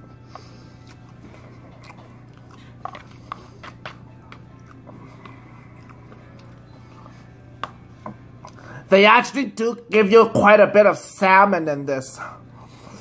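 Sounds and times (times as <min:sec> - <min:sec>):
person chewing: 0:00.0 - 0:08.6.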